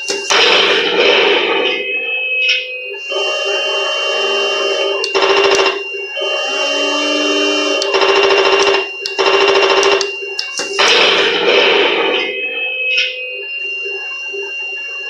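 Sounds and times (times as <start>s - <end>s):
toy tank engine whine from speaker: 3.0s - 12.0s.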